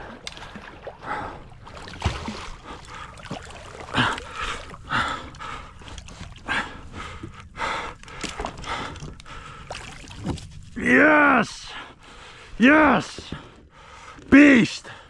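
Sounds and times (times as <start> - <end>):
water splashing: 0.0 - 6.5.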